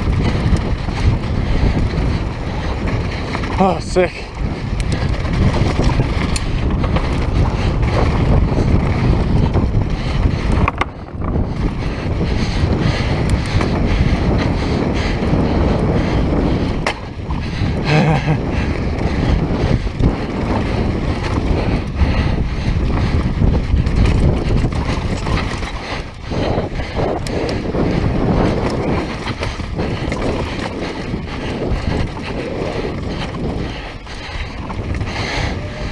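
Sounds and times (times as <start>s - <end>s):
tyres on dirt: 0.0s - 14.5s, 22.6s - 35.9s
bike rattling and clattering: 0.0s - 35.9s
wind buffeting microphone: 0.0s - 35.9s.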